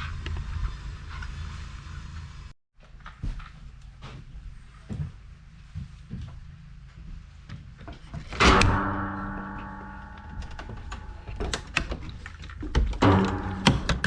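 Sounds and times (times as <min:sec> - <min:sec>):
clicks and knocks of handling: 0:07.5 - 0:14.0
metallic clang: 0:08.4 - 0:14.0.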